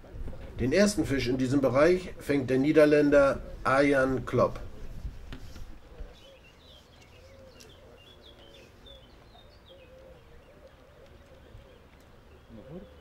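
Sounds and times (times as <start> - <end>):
small birds chirping: 4.8 - 13.0.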